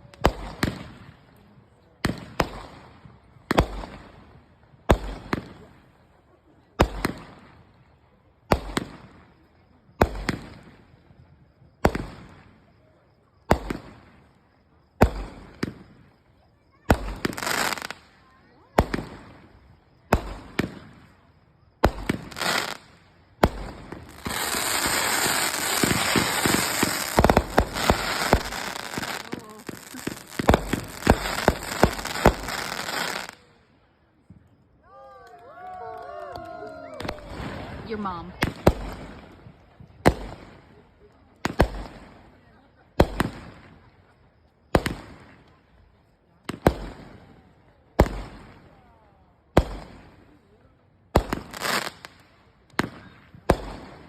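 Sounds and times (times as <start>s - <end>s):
fireworks crackling with rapid pops: 0.0s - 1.4s, 2.0s - 33.5s, 35.4s - 48.8s, 49.5s - 50.4s, 51.1s - 54.0s
firework bangs: 4.8s - 5.6s, 11.8s - 12.6s, 13.4s - 14.2s, 15.0s - 16.2s, 16.8s - 33.5s, 36.8s - 40.6s, 41.4s - 42.3s, 43.0s - 43.8s, 46.5s - 48.9s, 51.1s - 54.0s.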